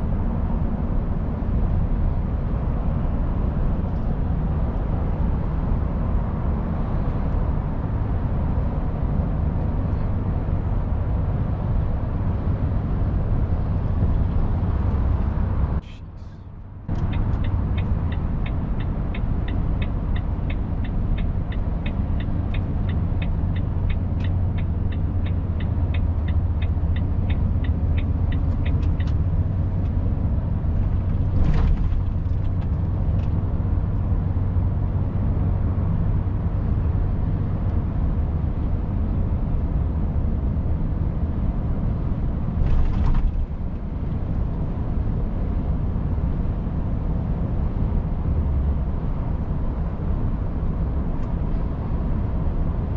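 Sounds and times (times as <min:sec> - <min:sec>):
truck diesel engine hum: 0:09.0 - 0:35.9
turn signal ticking: 0:16.9 - 0:30.0.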